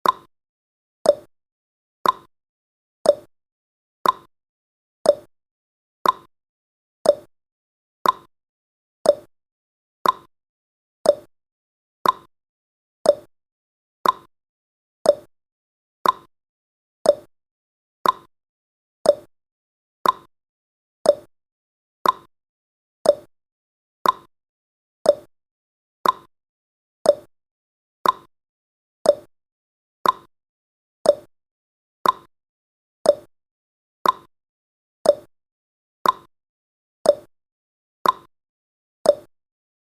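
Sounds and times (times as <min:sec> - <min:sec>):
timer ticking: 0:00.0 - 0:00.3, 0:01.0 - 0:01.3, 0:02.0 - 0:02.3, 0:03.0 - 0:03.3, 0:04.0 - 0:04.3, 0:05.1 - 0:05.3, 0:06.0 - 0:06.3, 0:07.0 - 0:07.3, 0:08.0 - 0:08.3, 0:09.0 - 0:09.3, 0:10.0 - 0:10.3, 0:11.0 - 0:11.3, 0:12.0 - 0:12.3, 0:13.0 - 0:13.3, 0:14.0 - 0:14.3, 0:15.0 - 0:15.3, 0:16.0 - 0:16.3, 0:17.0 - 0:17.3, 0:18.0 - 0:18.3, 0:19.0 - 0:19.3, 0:20.0 - 0:20.3, 0:21.0 - 0:21.3, 0:22.0 - 0:22.3, 0:23.0 - 0:23.3, 0:24.0 - 0:24.3, 0:25.0 - 0:25.3, 0:26.0 - 0:26.3, 0:27.0 - 0:27.3, 0:28.0 - 0:28.3, 0:29.0 - 0:29.3, 0:30.0 - 0:30.3, 0:31.0 - 0:31.3, 0:32.0 - 0:32.3, 0:33.0 - 0:33.3, 0:34.0 - 0:34.3, 0:35.0 - 0:35.3, 0:36.0 - 0:36.3, 0:37.0 - 0:37.3, 0:38.0 - 0:38.3, 0:39.1 - 0:39.3.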